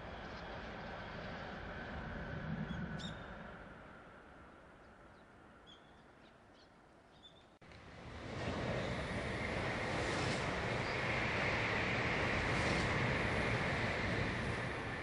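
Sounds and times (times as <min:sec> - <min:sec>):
distant train running: 0:07.7 - 0:15.0
train rushing: 0:07.7 - 0:15.0.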